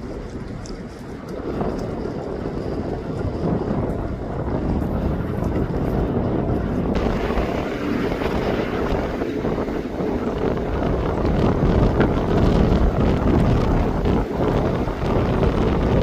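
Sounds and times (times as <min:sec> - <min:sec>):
jet engines rumbling: 0:00.0 - 0:16.0
wind buffeting microphone: 0:00.0 - 0:16.0.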